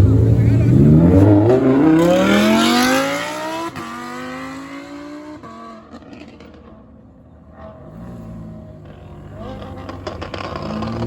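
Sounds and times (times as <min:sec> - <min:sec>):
car accelerating through gears: 0:00.0 - 0:06.8.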